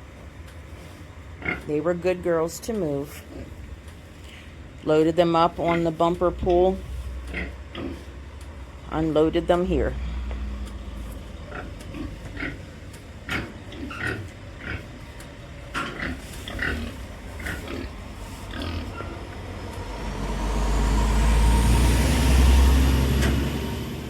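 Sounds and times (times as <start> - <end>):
pigs grunting: 1.4 - 1.7, 7.2 - 8.2, 11.3 - 15.2, 15.8 - 20.2
engine rumble with rising whine: 6.0 - 24.0.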